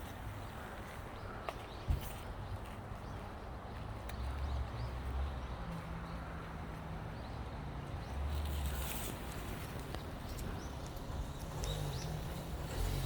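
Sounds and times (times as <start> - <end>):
footsteps on a trail: 0.0 - 6.9.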